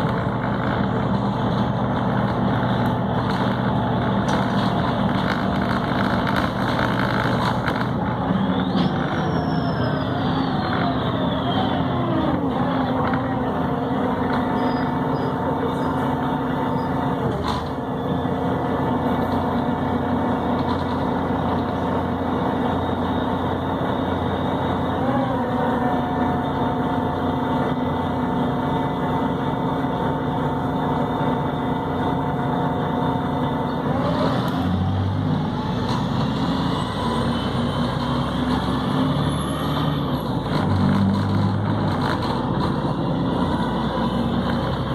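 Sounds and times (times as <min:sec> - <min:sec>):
bus diesel engine and gearbox whine: 0:00.0 - 0:44.9.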